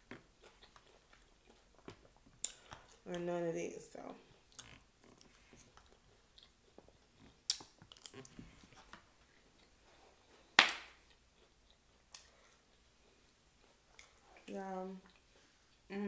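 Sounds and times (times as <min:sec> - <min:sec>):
close chewing with wet crunches: 0:00.0 - 0:03.2, 0:04.2 - 0:15.9
hand clap: 0:10.6 - 0:10.9.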